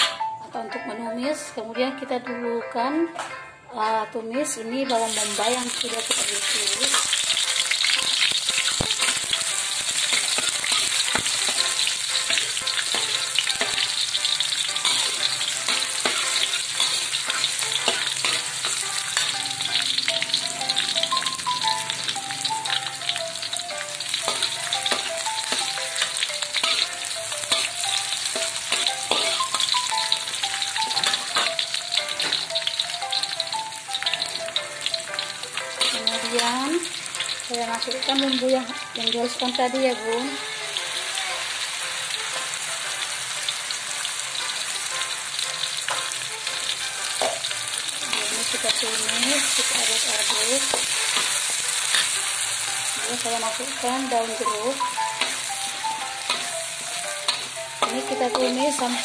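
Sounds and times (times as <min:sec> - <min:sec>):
onions sizzling in hot oil: 0:04.8 - 0:59.0
metal spatula scraping a wok: 0:05.0 - 0:19.9, 0:24.2 - 0:29.7, 0:47.1 - 0:53.5.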